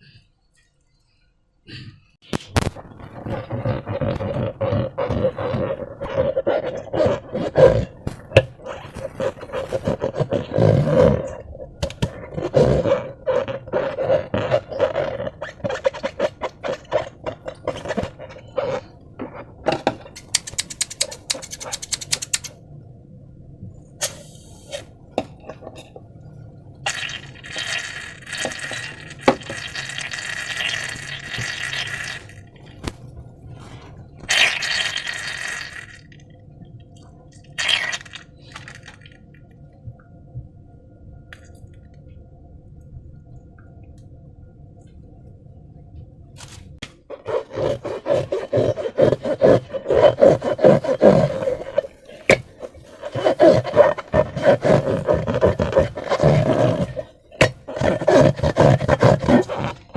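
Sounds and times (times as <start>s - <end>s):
slime squelching: 2.2s - 19.6s, 26.9s - 36.2s, 37.4s - 39.2s, 47.0s - 59.9s.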